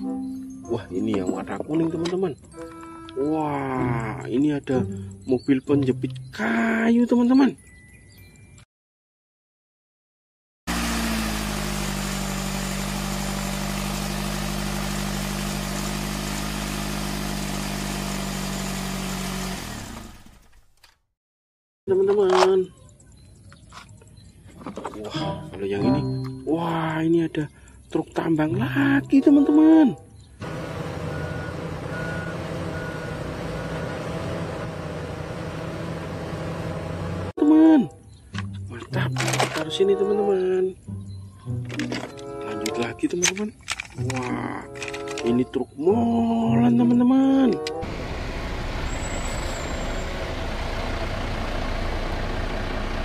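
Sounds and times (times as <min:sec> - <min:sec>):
engine running steadily: 0:10.7 - 0:20.6, 0:30.4 - 0:37.3, 0:47.8 - 0:53.0
backup alarm beeping: 0:31.1 - 0:34.0.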